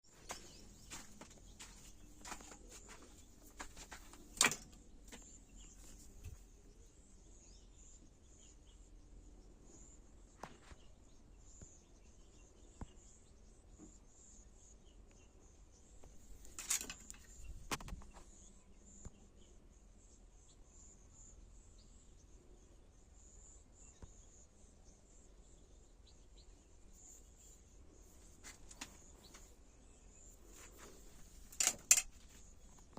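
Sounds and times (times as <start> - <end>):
sharp clicks or knocks: 3.6 - 4.8, 31.5 - 32.4.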